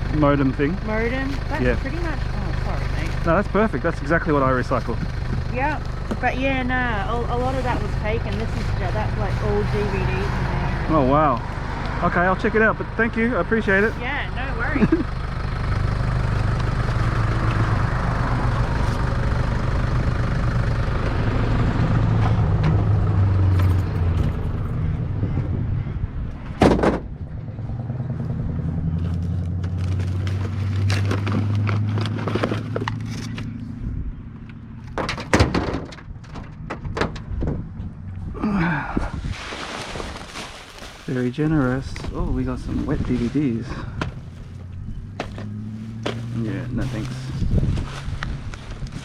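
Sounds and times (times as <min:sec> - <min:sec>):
vehicle engine humming: 0:00.0 - 0:49.0
sharp knocks and clatters: 0:26.6 - 0:27.1, 0:34.8 - 0:37.7.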